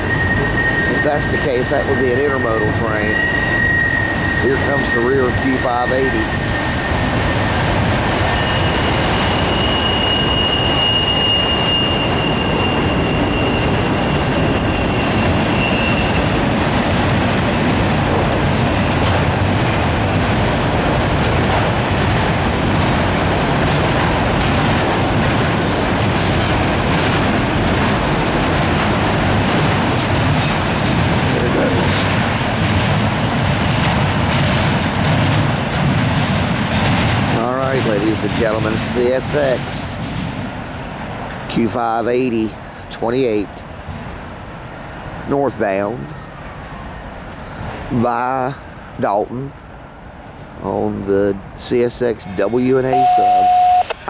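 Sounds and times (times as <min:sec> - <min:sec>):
high wheel squeal: 0:00.0 - 0:19.3, 0:52.2 - 0:54.0
freight train wheels rumbling: 0:00.0 - 0:54.0
train cars clanking: 0:00.0 - 0:54.0.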